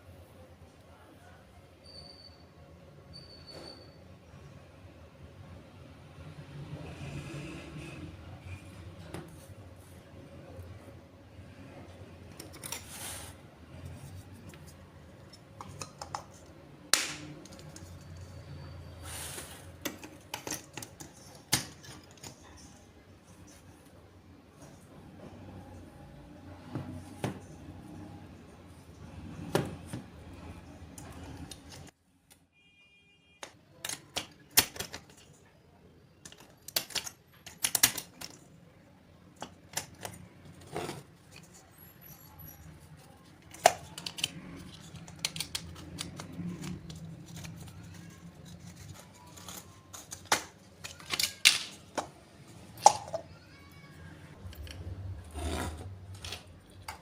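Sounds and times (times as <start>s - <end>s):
small hard parts clicking: 36.2s - 38.5s.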